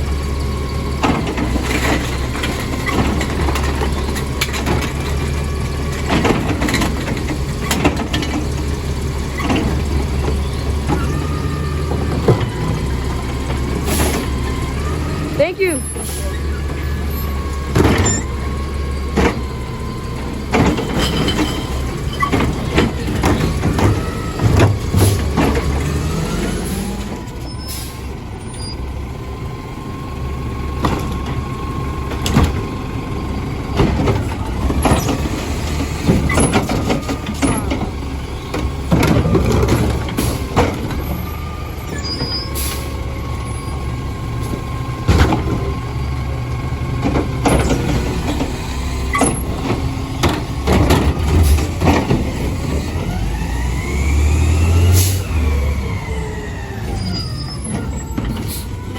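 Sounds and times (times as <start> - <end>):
diesel engine running: 0.0 - 58.9
metal clanks and bangs: 19.1 - 25.9, 44.4 - 46.2, 47.0 - 53.1
air brakes hissing: 27.5 - 28.1, 41.9 - 43.0, 58.3 - 58.8.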